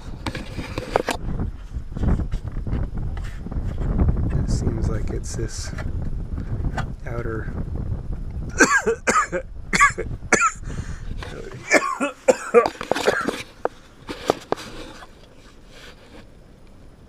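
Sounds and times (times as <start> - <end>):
man coughing and clearing throat: 8.5 - 10.7, 11.3 - 13.4.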